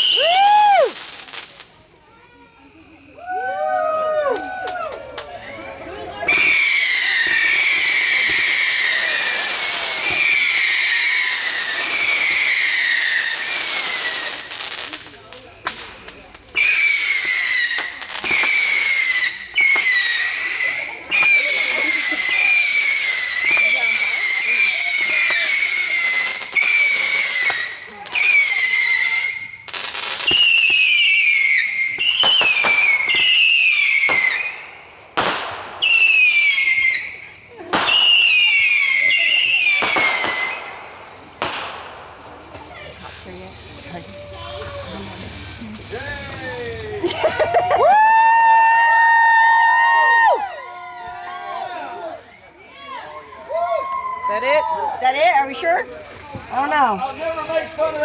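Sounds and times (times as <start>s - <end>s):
shrill falling whistle: 0.0s - 1.0s, 6.3s - 14.4s, 16.6s - 34.6s, 35.8s - 37.3s
firework hissing: 0.0s - 4.6s, 5.5s - 50.4s, 51.5s - 58.0s.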